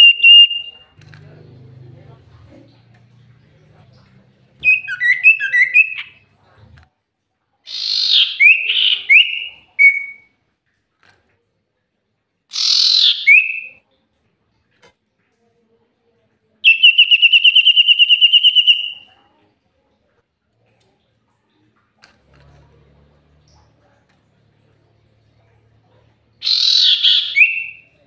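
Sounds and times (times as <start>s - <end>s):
bird chirping: 3.1s - 6.6s, 7.7s - 10.3s, 12.5s - 13.8s, 26.4s - 28.0s
bird rapid trill: 26.4s - 27.8s
bird whistled slur: 26.4s - 27.8s
bird harsh rasping notes: 26.4s - 27.9s.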